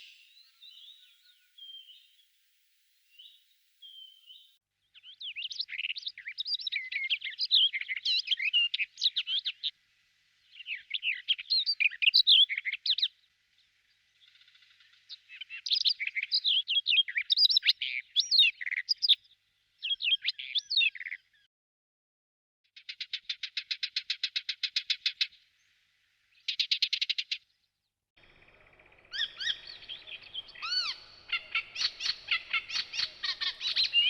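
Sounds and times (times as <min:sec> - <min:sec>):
songbird warbling: 0:05.0 - 0:09.7, 0:10.4 - 0:13.1, 0:28.2 - 0:34.0
bird rapid pulsed trill: 0:28.2 - 0:34.0.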